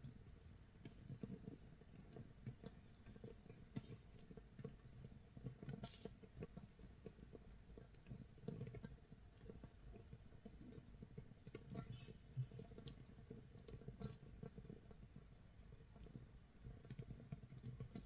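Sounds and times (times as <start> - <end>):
fermentation bubbles popping: 0.8 - 18.0.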